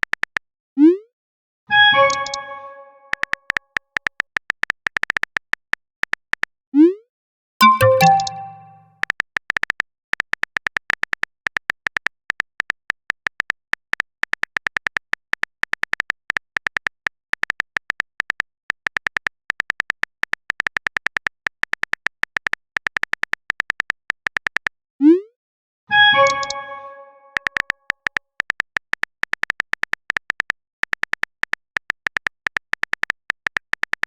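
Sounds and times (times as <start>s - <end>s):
smartphone keyboard typing clicks: 2.0s - 2.4s, 3.1s - 6.5s, 7.6s - 24.7s, 26.2s - 26.6s, 27.3s - 34.0s.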